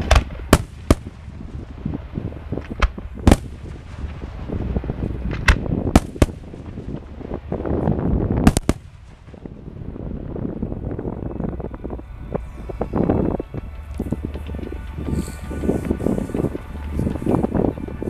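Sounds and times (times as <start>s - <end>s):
continuous low rumble: 0.0s - 18.0s
firework shells bursting: 8.4s - 9.5s.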